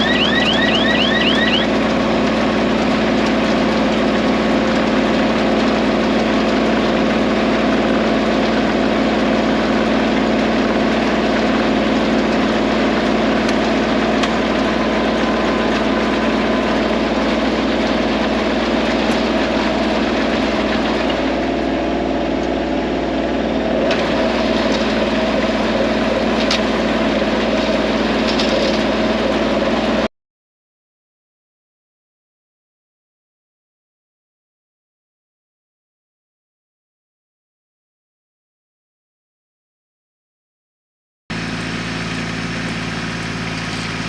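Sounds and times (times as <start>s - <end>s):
tractor diesel engine running: 0.0s - 30.1s, 41.3s - 44.0s.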